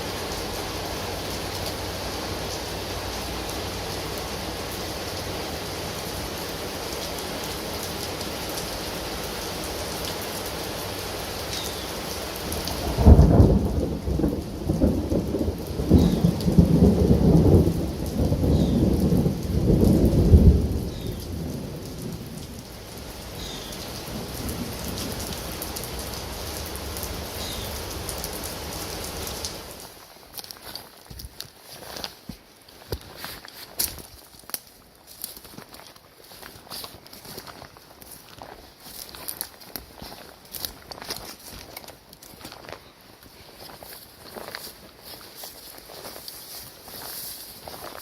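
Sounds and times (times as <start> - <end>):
steady rain: 0.0 - 48.0
thunder rolling: 12.8 - 22.7.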